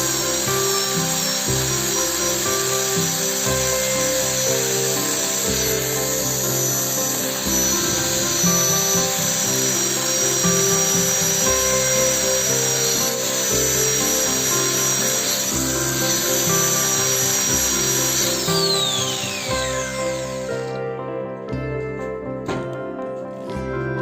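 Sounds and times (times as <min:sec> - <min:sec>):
rotary power tool whining: 0:00.0 - 0:20.9
background music: 0:00.0 - 0:24.0.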